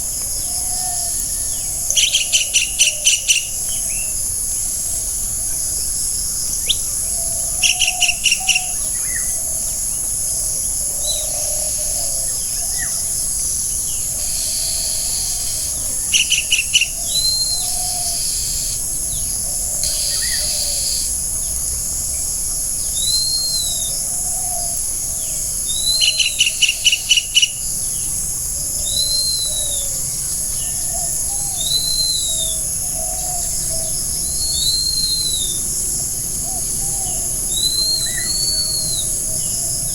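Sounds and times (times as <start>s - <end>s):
insect chorus: 0.0s - 39.9s
low bird warbling: 19.5s - 21.1s.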